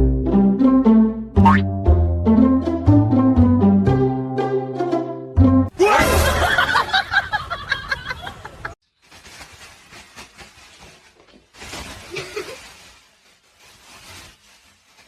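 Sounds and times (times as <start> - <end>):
people laughing and snickering: 5.8 - 8.8.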